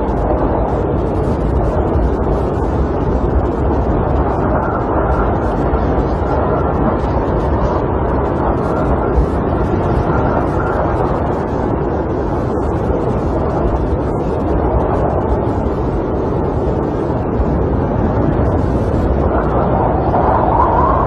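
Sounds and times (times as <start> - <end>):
wind blowing against a camper: 0.0 - 21.0.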